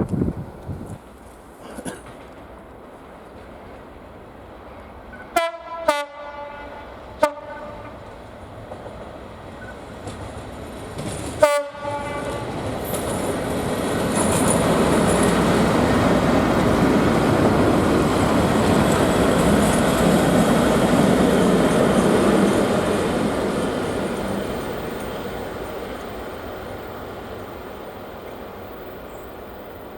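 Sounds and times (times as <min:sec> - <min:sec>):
train engine and wheel rumble: 0:00.0 - 0:29.9
locomotive horn toots: 0:05.3 - 0:08.0, 0:11.4 - 0:12.6.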